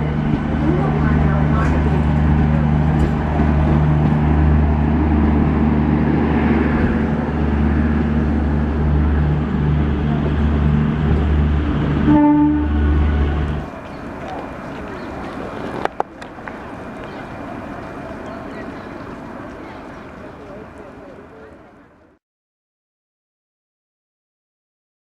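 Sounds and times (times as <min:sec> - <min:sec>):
low engine drone: 0:00.0 - 0:19.8
short horn note: 0:12.0 - 0:13.6.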